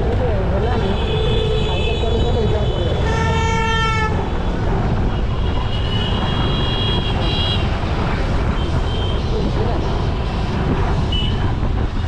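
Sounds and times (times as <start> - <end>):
road and wind rumble: 0.0 - 12.0
distant horn: 0.8 - 4.4.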